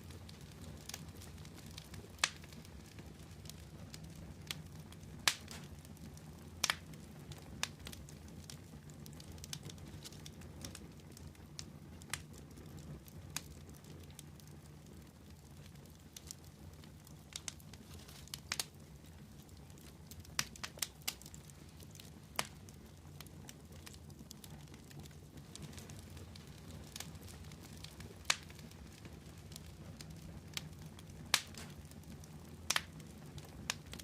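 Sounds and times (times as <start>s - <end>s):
wood fire crackling and popping: 0.0s - 34.0s.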